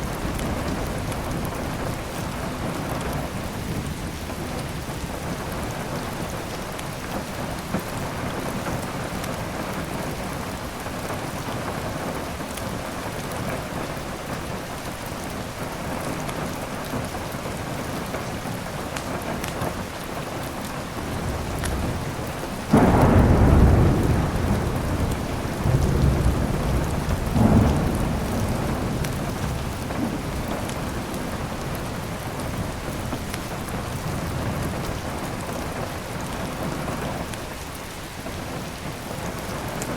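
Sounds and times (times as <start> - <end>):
thunder clap and rumble: 0.0 - 6.5, 20.9 - 37.3
steady rain falling: 0.0 - 39.9.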